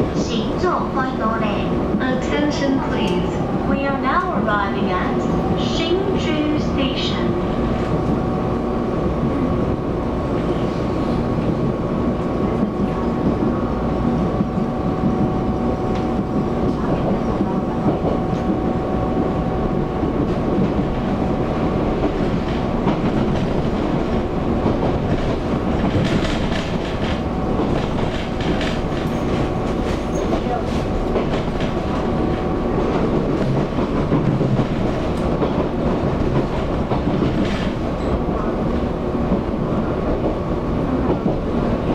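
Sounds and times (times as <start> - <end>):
steady train tone: 0.0 - 41.9
train wheels rumbling on rail: 0.0 - 41.9
clickety-clack of rail joints: 10.3 - 18.7, 20.1 - 41.9.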